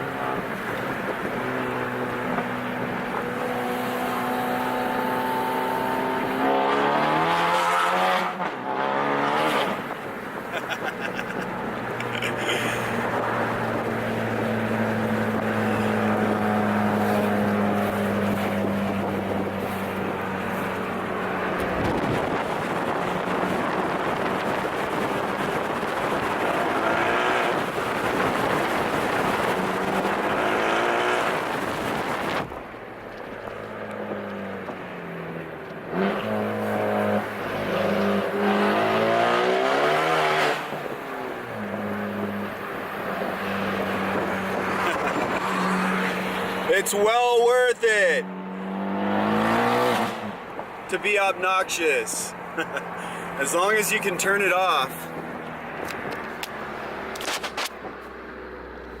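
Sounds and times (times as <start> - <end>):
car engine revving through loud exhaust: 0.0 - 10.0, 11.2 - 32.5, 35.8 - 46.7, 48.2 - 50.6
car engine exhaust drone: 10.0 - 34.2.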